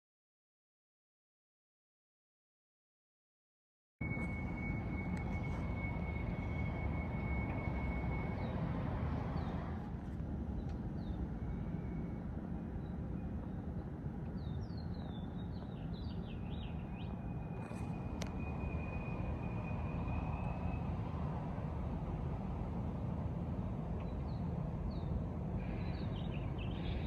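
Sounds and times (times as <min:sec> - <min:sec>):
thin high whine: 0:04.0 - 0:09.7
steady low rumble: 0:04.0 - 0:27.0
birds chirping: 0:12.8 - 0:21.0, 0:24.0 - 0:27.0.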